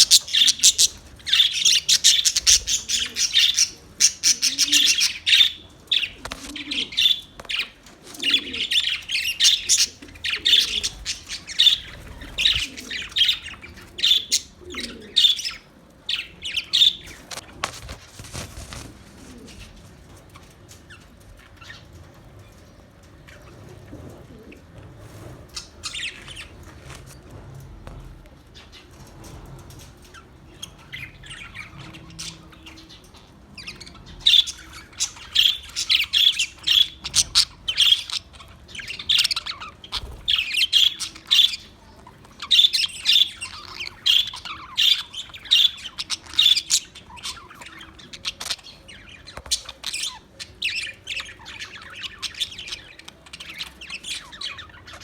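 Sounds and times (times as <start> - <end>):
parrots squawking and chirping: 0.0 - 17.3, 30.1 - 55.0.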